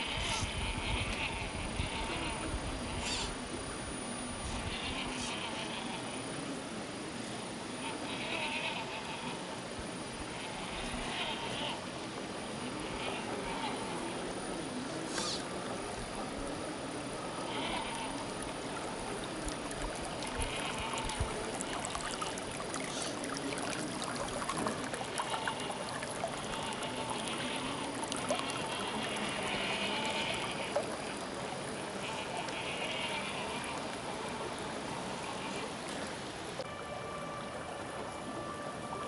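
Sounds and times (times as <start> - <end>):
running water trickling: 11.0 - 36.7.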